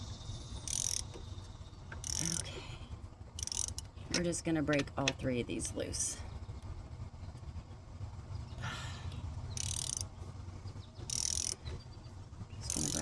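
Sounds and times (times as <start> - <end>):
socket ratchet clicking: 0.6 - 1.2, 1.9 - 2.5, 3.4 - 4.9, 9.5 - 10.1, 11.0 - 11.6, 12.7 - 13.0.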